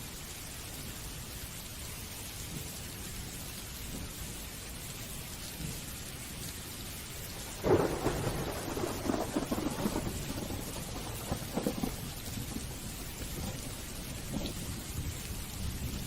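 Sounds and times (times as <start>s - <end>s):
steady rain: 0.0s - 16.0s
thunderclap rumbling: 7.4s - 16.0s.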